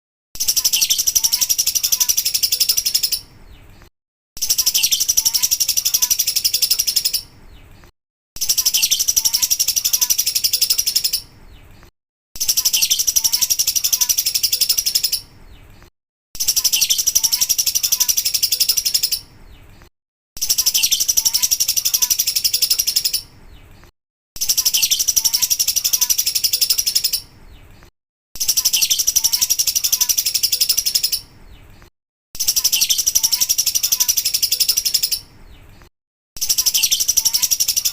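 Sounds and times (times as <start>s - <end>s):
lovebird chattering trills: 0.4s - 3.3s, 4.4s - 7.3s, 8.4s - 11.3s, 12.4s - 15.3s, 16.4s - 19.3s, 20.4s - 23.3s, 24.4s - 27.3s, 28.4s - 31.3s, 32.4s - 35.3s, 36.4s - 37.9s.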